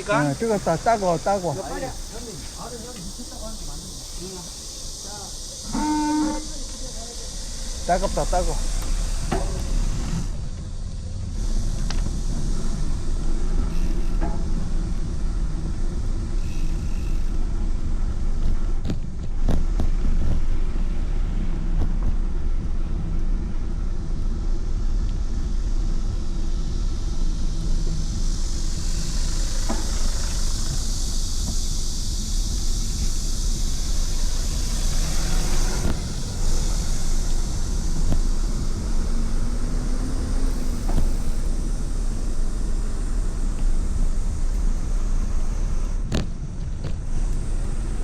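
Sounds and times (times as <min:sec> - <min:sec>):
steady high hiss: 0:00.0 - 0:48.0
wind rumbling on microphone: 0:06.3 - 0:48.0.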